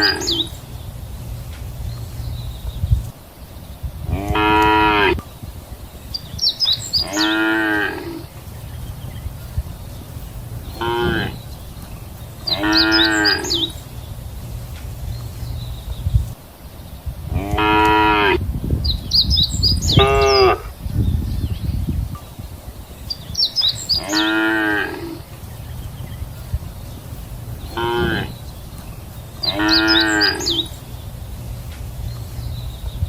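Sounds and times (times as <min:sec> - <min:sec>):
cattle mooing: 0:04.1 - 0:05.2, 0:07.0 - 0:08.3, 0:10.8 - 0:11.4, 0:12.5 - 0:13.8, 0:17.3 - 0:18.4, 0:24.0 - 0:25.2, 0:27.7 - 0:28.4, 0:29.4 - 0:30.7.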